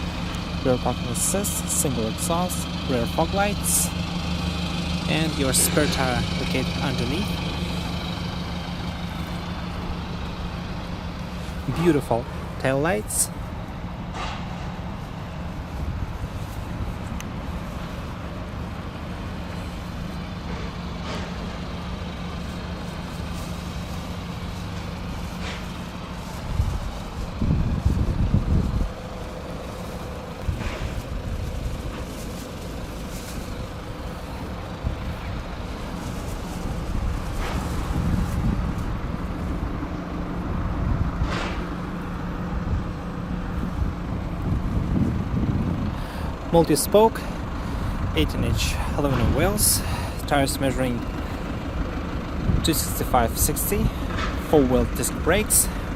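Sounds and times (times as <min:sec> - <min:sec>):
car engine idling: 0:00.0 - 0:55.9
loud low rumble: 0:00.0 - 0:55.9
wind buffeting microphone: 0:13.4 - 0:19.1, 0:23.0 - 0:46.5.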